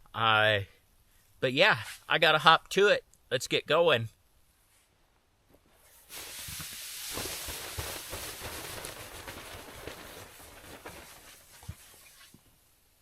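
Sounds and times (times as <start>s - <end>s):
fabric crinkling: 5.8s - 12.6s
air hissing out of valve: 5.9s - 8.7s.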